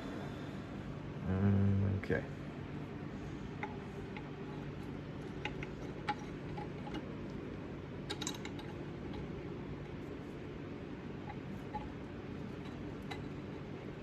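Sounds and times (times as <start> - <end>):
steady low hum: 0.0 - 14.0
metal parts clinking: 8.1 - 8.8.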